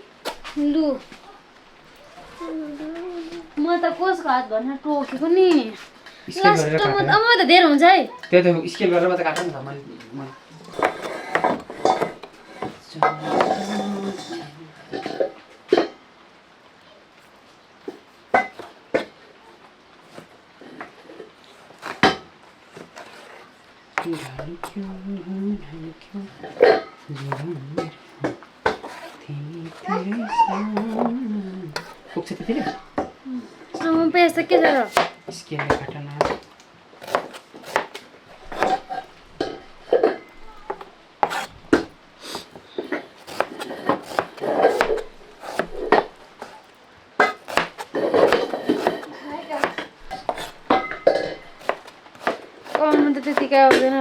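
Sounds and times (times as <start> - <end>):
knife chopping on wooden board: 10.7 - 13.7, 27.2 - 27.5, 30.7 - 31.2, 31.8 - 32.8, 34.7 - 36.4, 37.0 - 39.6, 40.5 - 42.6, 43.2 - 54.0
hard objects knocking: 10.7 - 14.4, 30.1 - 33.2, 34.6 - 54.0.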